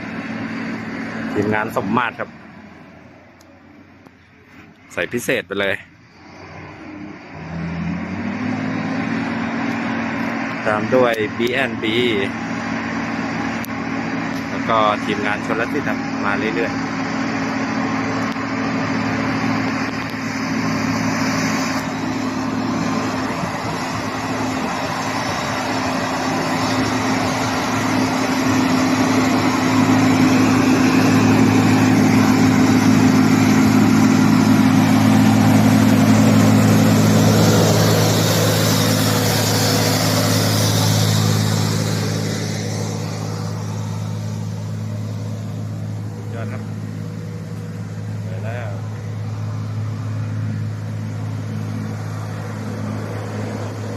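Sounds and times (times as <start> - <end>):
diesel truck engine: 0.0 - 53.9
tyre and air rush: 15.9 - 53.9.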